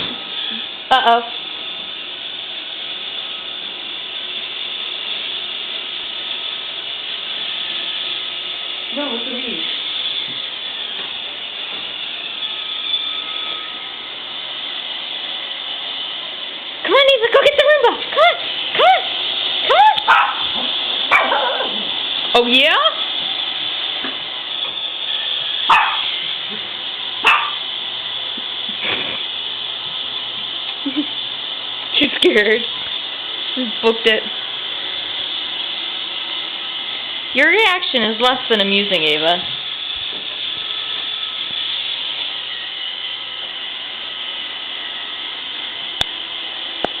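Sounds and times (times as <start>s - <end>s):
robot vacuum humming: 0.0s - 47.0s
dog barking: 20.1s - 21.9s, 25.7s - 26.1s, 27.2s - 27.6s.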